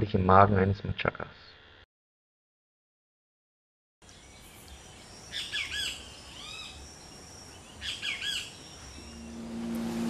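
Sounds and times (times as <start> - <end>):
bird chirps: 4.0 - 10.0
faint outdoor ambience: 4.0 - 10.0.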